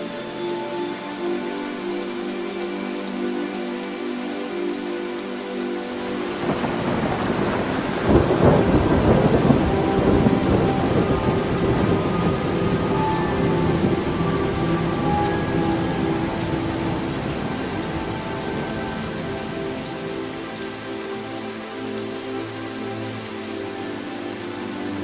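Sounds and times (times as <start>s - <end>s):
rain falling: 0.0s - 25.0s
thunder rumbling: 6.4s - 20.4s.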